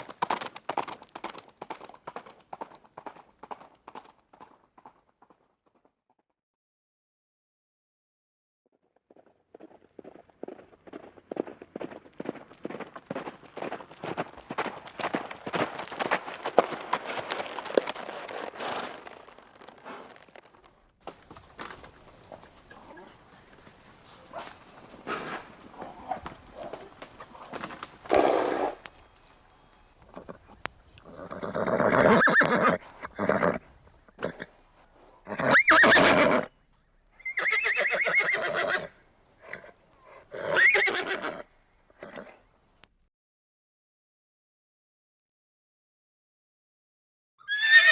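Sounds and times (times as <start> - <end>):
horse hooves knocking and stamping: 0.0 - 6.2, 8.8 - 31.1
horse whinnying: 31.0 - 33.6, 35.3 - 36.5, 37.2 - 42.4, 47.4 - 47.9.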